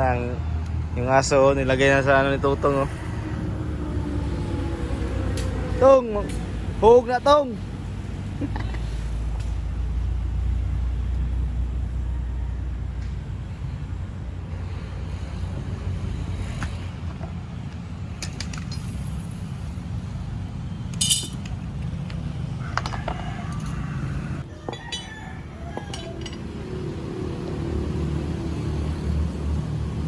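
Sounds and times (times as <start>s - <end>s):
sharp metallic clinks: 20.9s - 21.6s.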